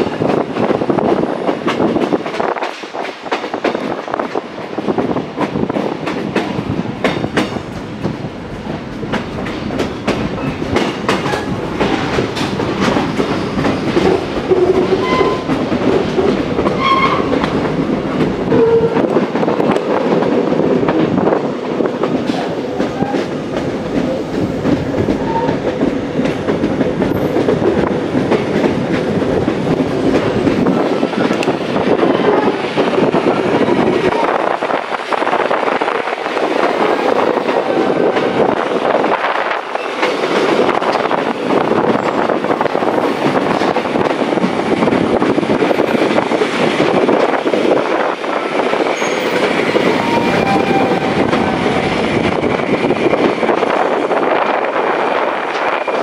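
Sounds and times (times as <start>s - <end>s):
clickety-clack over rail joints: 0.0s - 56.0s
train wheels rumbling on track: 0.0s - 56.0s
short wheel squeals: 49.0s - 50.8s.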